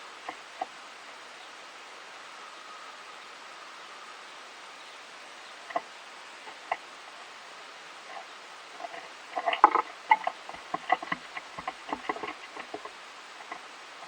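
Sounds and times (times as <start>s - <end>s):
squirrel eating with crisp cracks: 0.0s - 1.0s, 5.0s - 14.0s
steady hiss: 0.0s - 14.0s.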